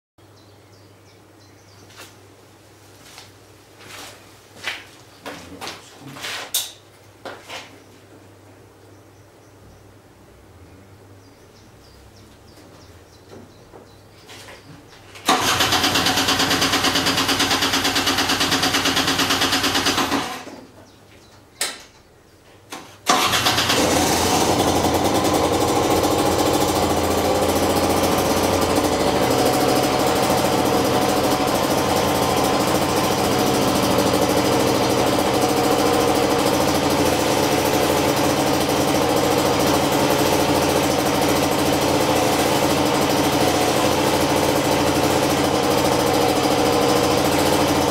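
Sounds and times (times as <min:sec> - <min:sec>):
two-stroke motorcycle engine starting: 0:15.2 - 0:20.7, 0:22.7 - 0:47.9.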